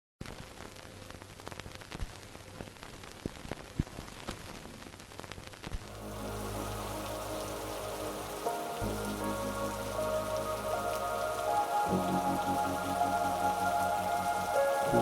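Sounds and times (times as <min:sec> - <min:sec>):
rain falling: 0:00.2 - 0:15.0
raindrops tapping: 0:05.6 - 0:15.0
music with held notes: 0:05.9 - 0:15.0.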